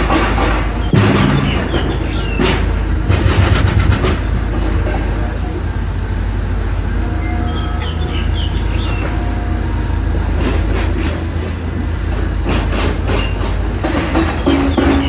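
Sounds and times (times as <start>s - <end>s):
metallic clattering: 0.0s - 5.4s
heavy machinery rumbling: 0.0s - 15.0s
short high squeaks: 0.0s - 15.0s.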